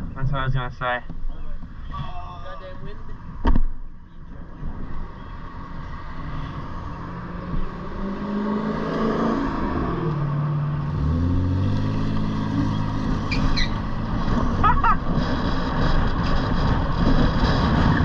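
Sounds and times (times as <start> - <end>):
vehicle engine accelerating: 4.4 - 18.0.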